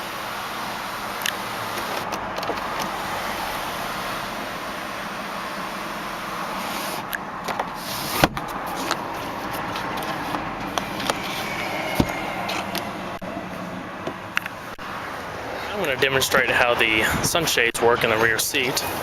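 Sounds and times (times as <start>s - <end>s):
clicks and knocks in car cabin: 1.8s - 2.9s.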